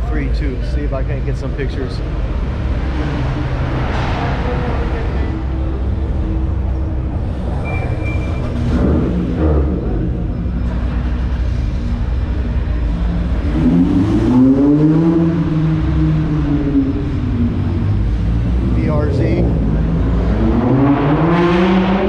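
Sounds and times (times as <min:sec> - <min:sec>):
car engines rumbling: 0:00.0 - 0:22.0
engine revving: 0:12.6 - 0:22.0.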